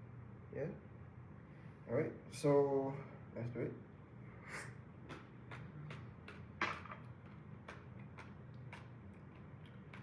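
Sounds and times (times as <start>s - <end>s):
seeds being chewed: 5.0s - 10.0s.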